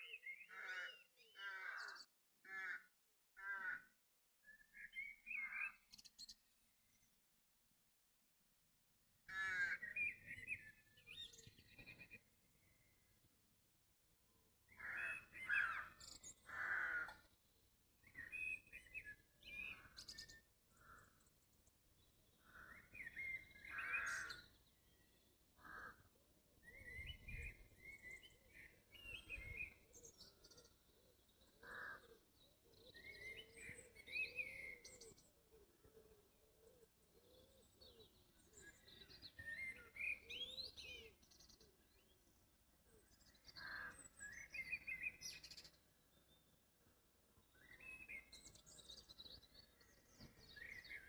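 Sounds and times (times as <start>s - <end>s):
songbirds chirping and warbling: 0.0s - 7.6s, 8.6s - 51.0s.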